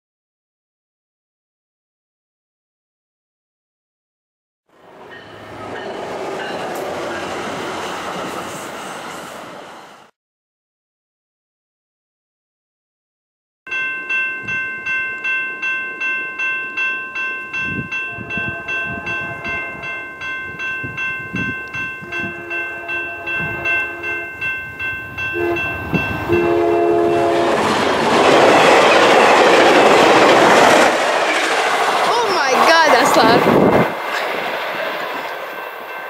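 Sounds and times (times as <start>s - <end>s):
train passing at speed: 4.7s - 10.2s, 14.3s - 36.0s
crossing bell ringing: 5.1s - 7.4s, 13.7s - 30.3s, 32.1s - 33.4s, 35.2s - 36.0s
locomotive horn: 18.1s - 19.9s, 22.0s - 24.4s, 25.3s - 27.8s.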